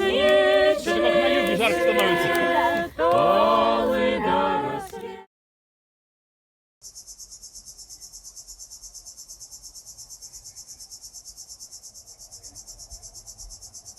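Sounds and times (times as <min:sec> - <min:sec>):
cricket chirping: 0:06.8 - 0:13.9.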